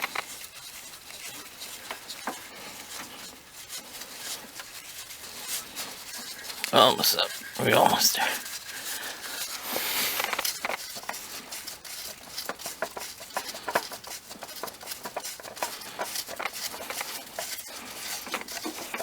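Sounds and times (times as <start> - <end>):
oil filter clicks and scrapes: 8.4 - 19.0.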